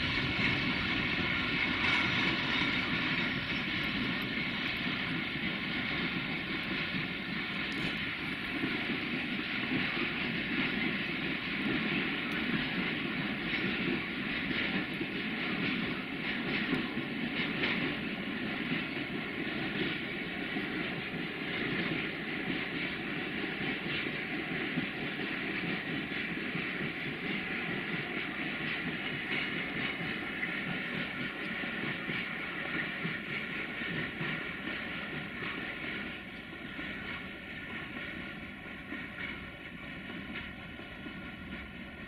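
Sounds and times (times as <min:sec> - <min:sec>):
train wheels on rails: 0:00.0 - 0:42.0.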